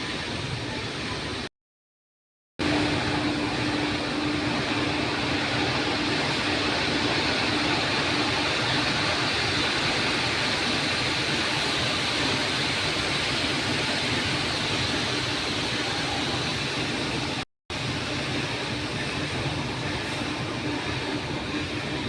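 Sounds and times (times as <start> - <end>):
machinery rumble and hiss: 0.0 - 1.5, 2.6 - 22.0.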